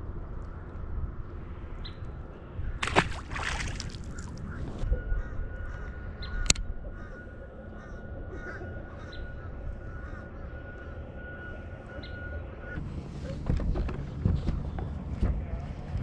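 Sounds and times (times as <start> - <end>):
low rumble of wind: 0.0 - 16.0
distant birds calling: 2.6 - 12.8
steady high whine: 4.3 - 12.8
sharp click: 6.4 - 6.7.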